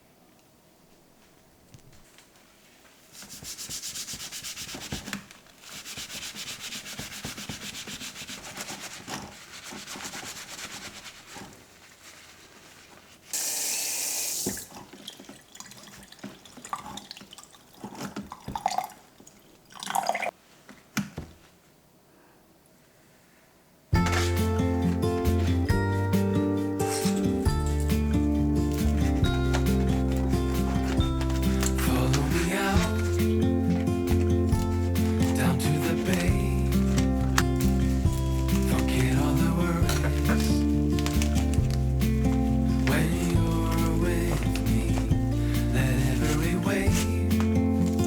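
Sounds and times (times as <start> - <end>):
brush scrubbing wet surface: 3.1 - 13.4, 14.4 - 18.8, 24.0 - 48.0
loud hiss: 13.3 - 14.6
clatter of handling: 24.0 - 25.8, 28.7 - 45.6
background music: 24.0 - 48.0.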